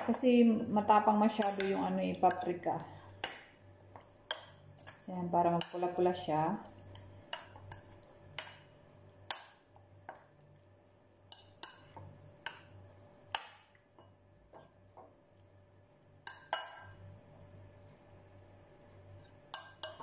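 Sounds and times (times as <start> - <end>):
metal spoon clinking on glass bowl: 1.3 - 2.5, 19.5 - 20.0.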